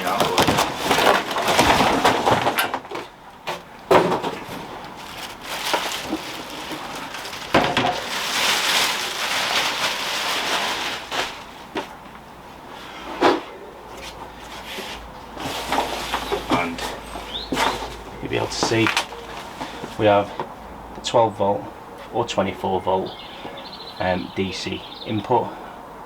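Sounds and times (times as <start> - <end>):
packaging rustling: 0.0 - 12.0, 15.3 - 20.0.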